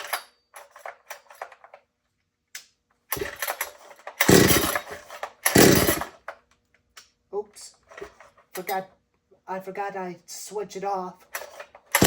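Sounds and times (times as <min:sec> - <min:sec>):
engine turning over without firing: 0:03.1 - 0:06.2
chainsaw recoil starter pulled: 0:03.1 - 0:06.3, 0:11.3 - 0:12.0.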